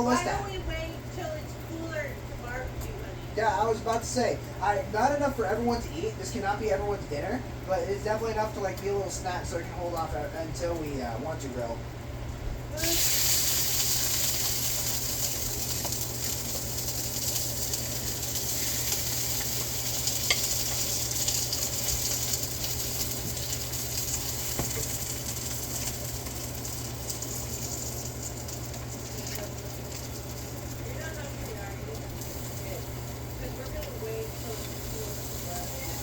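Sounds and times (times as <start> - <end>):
tacos sizzling in a pan: 0.0 - 2.3, 12.7 - 36.0.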